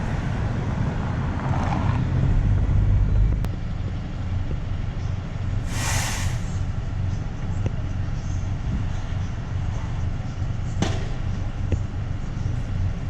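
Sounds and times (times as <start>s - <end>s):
car road rumble: 0.0s - 13.0s
brief hiss: 5.7s - 6.6s.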